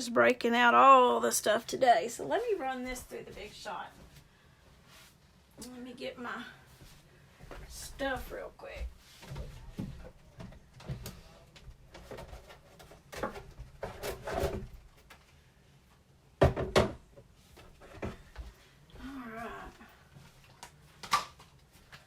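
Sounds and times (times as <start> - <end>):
objects knocking and clattering: 9.3 - 15.2, 16.4 - 18.5.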